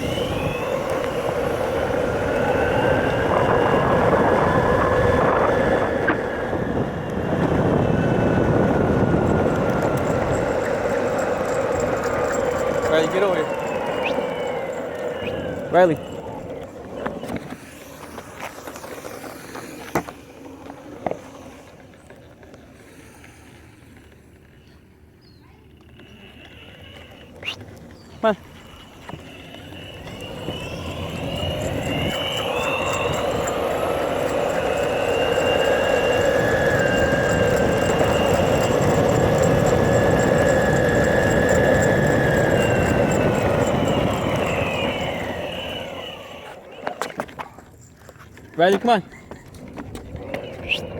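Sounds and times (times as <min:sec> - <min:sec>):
vehicle passing with high whine: 0:00.0 - 0:22.0, 0:27.8 - 0:47.3
skateboard wheels rolling on pavement: 0:00.0 - 0:50.9.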